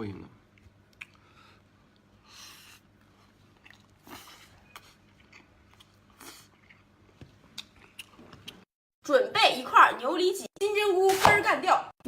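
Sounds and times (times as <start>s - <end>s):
person chewing food: 0.5s - 8.7s.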